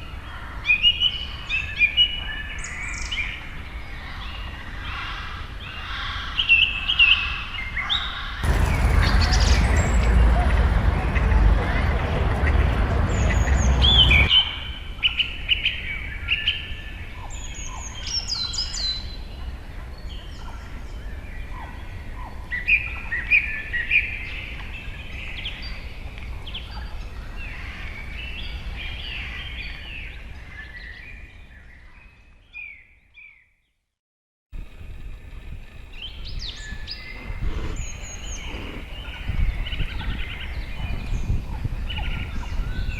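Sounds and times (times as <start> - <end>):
birds chirping and calling: 0.0 - 14.6, 35.9 - 42.9
loud rushing noise: 8.4 - 14.3.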